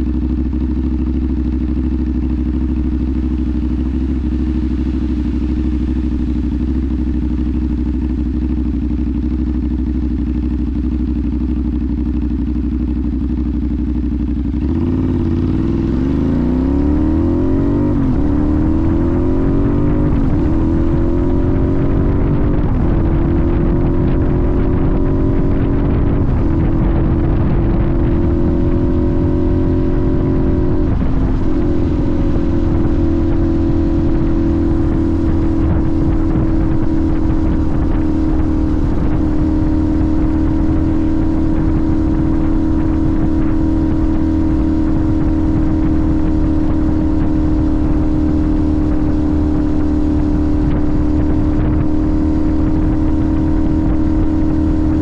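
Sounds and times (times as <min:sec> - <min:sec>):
motorcycle engine cruising: 0:00.0 - 0:55.0
road rumble: 0:00.0 - 0:55.0
heavy wind: 0:14.4 - 0:55.0.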